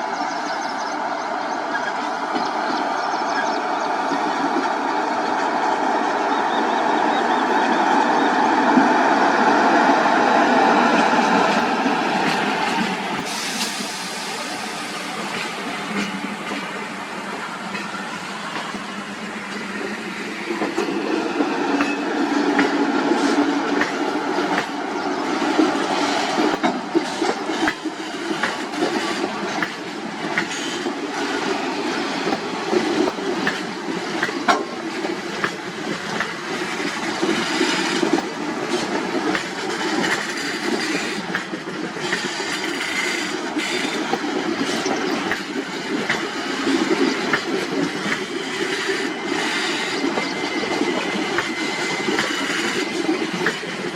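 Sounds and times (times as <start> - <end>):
train wheels clattering over rail joints: 17.6 - 53.9.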